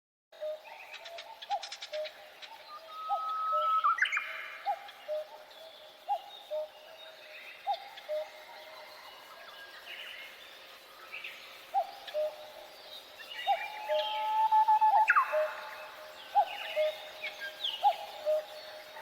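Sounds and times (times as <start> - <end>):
birds chirping and whistling: 0.4 - 6.7, 13.2 - 19.0.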